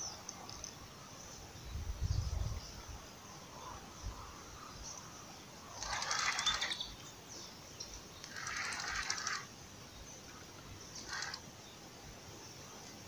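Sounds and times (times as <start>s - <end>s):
bird raspy call: 10.9s - 11.5s.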